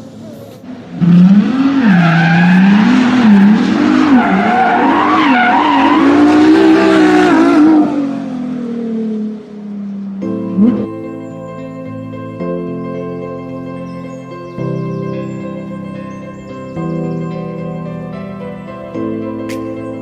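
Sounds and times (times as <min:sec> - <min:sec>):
car engine revving: 0:00.2 - 0:10.9.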